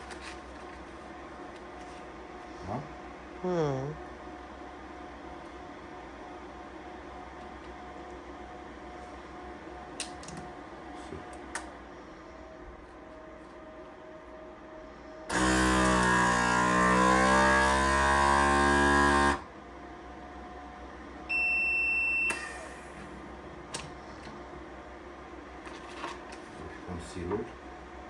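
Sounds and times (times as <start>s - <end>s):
vacuum sealer pump motor: 15.3s - 19.5s, 21.3s - 23.1s.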